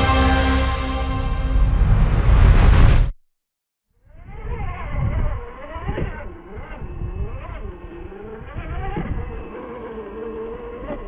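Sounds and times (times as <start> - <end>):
low rumbling: 0.0 - 3.1.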